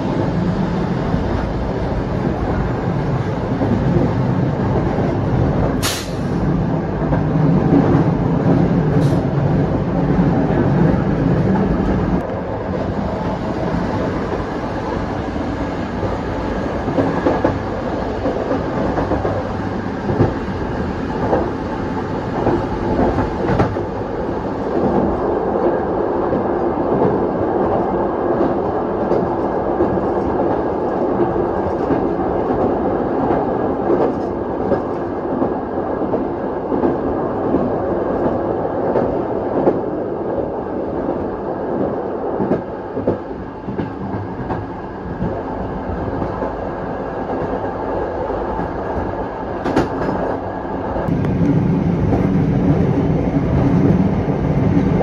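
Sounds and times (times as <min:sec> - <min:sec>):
train rumbling on rails: 0:00.0 - 0:55.0.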